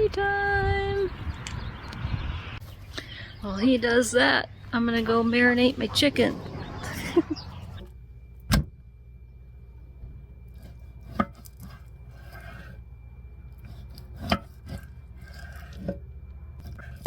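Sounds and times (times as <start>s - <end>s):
knife scraping and handling: 10.5s - 12.9s, 13.5s - 16.0s.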